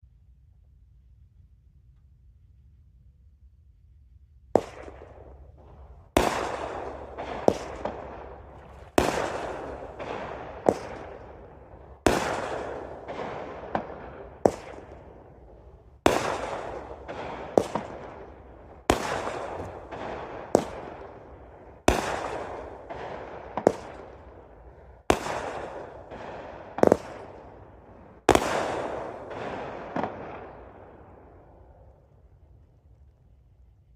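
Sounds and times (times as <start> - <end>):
sharp firework report: 4.6 - 32.2
firework cake bangs: 6.1 - 15.1, 16.1 - 21.2.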